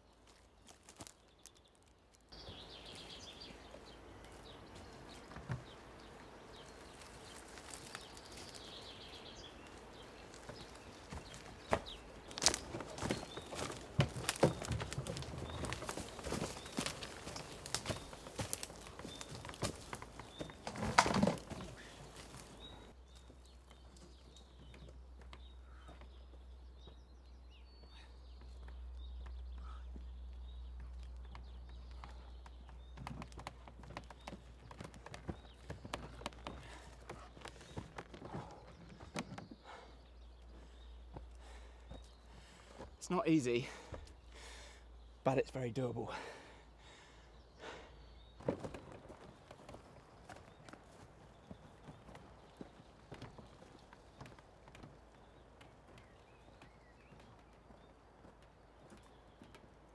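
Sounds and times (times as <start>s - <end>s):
footsteps on forest floor: 0.2s - 23.4s, 48.2s - 59.9s
birds chirping: 2.3s - 59.9s.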